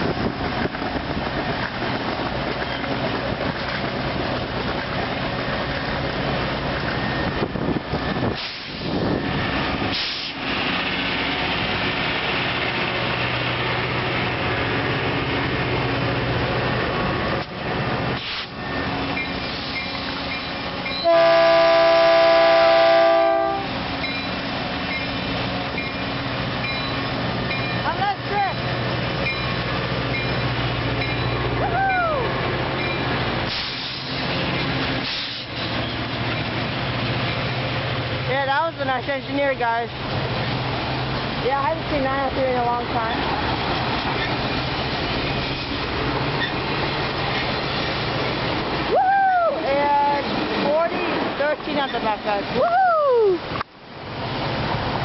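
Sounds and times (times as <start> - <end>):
diesel train running past: 0.0 - 55.0
train horn chord: 21.0 - 23.8.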